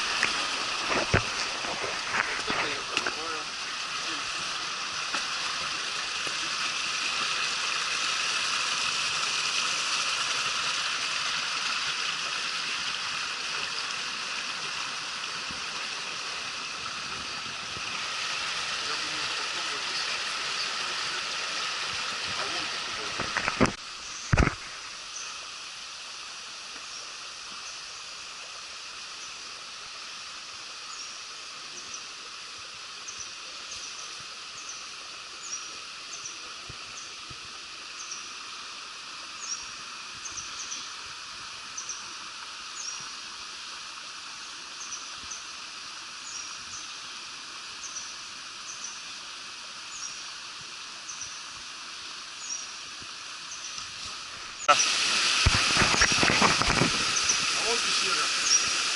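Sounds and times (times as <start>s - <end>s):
forest stream rushing: 0.0s - 58.9s
small bird chirping: 58.4s - 58.8s.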